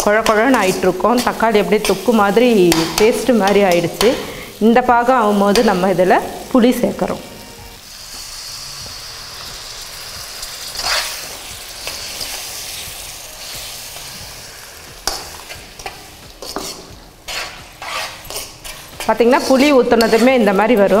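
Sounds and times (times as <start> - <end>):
masala sizzling in oil: 0.0 - 21.0
ladle scraping pan: 15.0 - 21.0.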